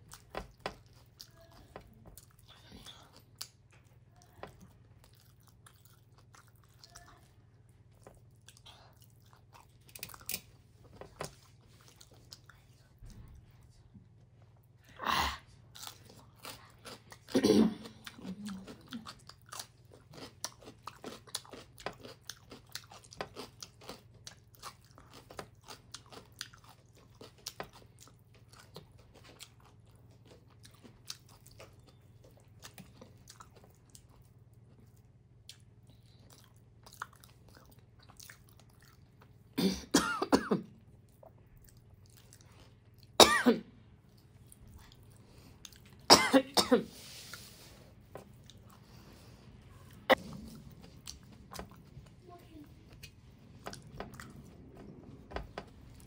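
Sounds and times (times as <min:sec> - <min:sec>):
chewing with wet mouth clicks: 0:00.0 - 0:13.5, 0:15.7 - 0:39.5, 0:40.8 - 0:43.2, 0:44.0 - 0:46.1, 0:48.0 - 0:56.0
person coughing: 0:17.3 - 0:18.0, 0:39.6 - 0:40.7, 0:43.2 - 0:43.7, 0:46.1 - 0:46.9.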